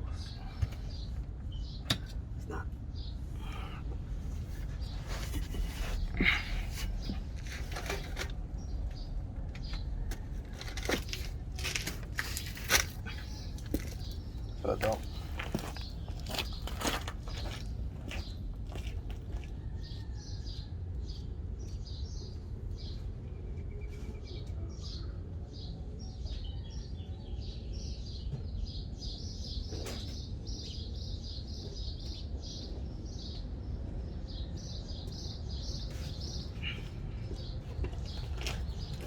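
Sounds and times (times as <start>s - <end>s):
steady low rumble: 0.0s - 19.8s
small birds chirping: 0.0s - 39.0s.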